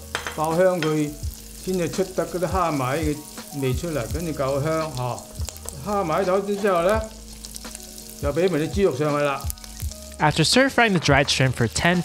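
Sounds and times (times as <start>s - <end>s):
garlic sizzling in hot oil: 0.0s - 12.0s
person talking: 0.3s - 5.2s, 5.8s - 7.1s.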